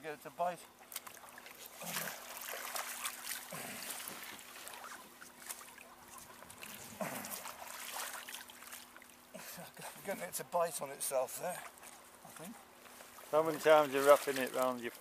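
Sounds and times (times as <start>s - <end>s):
water splashing and trickling: 0.7s - 15.0s.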